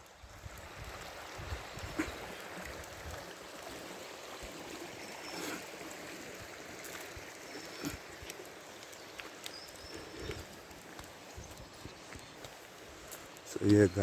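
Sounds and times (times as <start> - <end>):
stream rushing: 0.0 - 14.0
faint clicks: 6.8 - 13.8.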